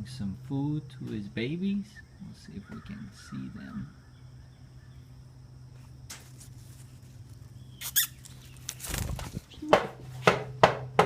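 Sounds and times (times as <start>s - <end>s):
sharp bird calls: 0.9s - 5.3s, 7.5s - 9.8s
wings rustling twigs: 5.7s - 9.6s
baby bird squeaking: 7.6s - 9.8s.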